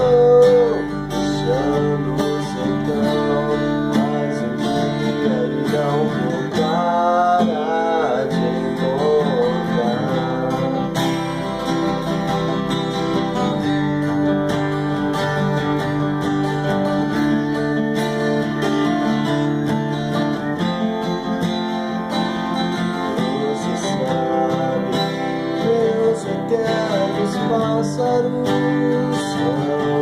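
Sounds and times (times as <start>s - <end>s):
person singing: 0.0s - 14.3s, 16.4s - 30.0s
acoustic guitar: 0.0s - 30.0s.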